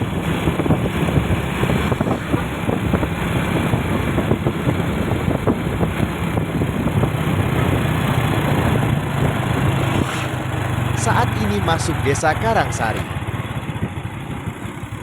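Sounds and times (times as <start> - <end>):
wind noise: 0.0 - 11.0
road noise: 0.0 - 15.0
vehicle engine running: 0.0 - 15.0.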